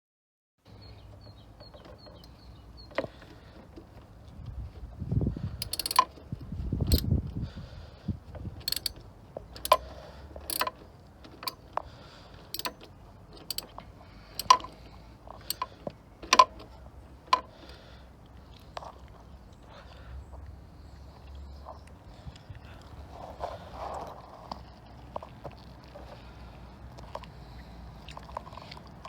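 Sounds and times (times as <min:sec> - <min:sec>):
low rumbling handling noise: 0:00.8 - 0:19.6
metal hand tools clicking and rattling: 0:05.6 - 0:06.3, 0:06.9 - 0:07.1, 0:08.6 - 0:11.7, 0:12.4 - 0:16.7.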